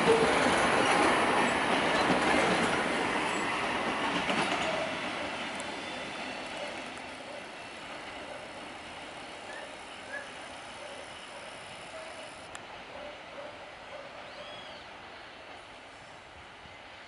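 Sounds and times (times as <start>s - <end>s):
train wheels on rails: 0.0s - 13.5s.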